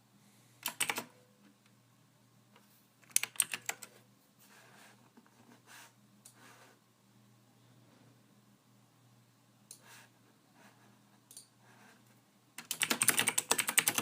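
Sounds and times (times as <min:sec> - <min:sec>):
computer keyboard typing: 0:00.6 - 0:01.1, 0:03.0 - 0:04.0, 0:12.6 - 0:14.0.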